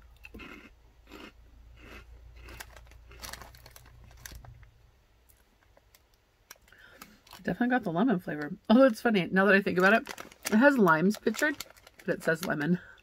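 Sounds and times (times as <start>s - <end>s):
crunchy chips being chewed: 0.1s - 4.4s, 9.8s - 13.0s.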